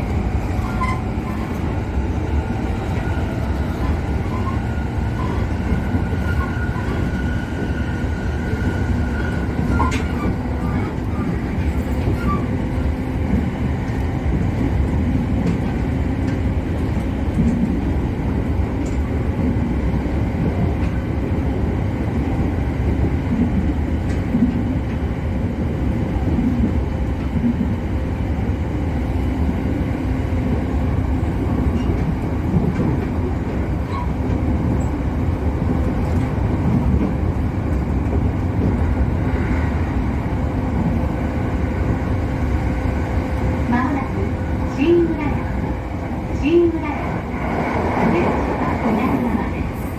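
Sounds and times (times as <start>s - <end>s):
train running rumble: 0.0s - 49.9s
light clicks from rails: 18.7s - 19.2s.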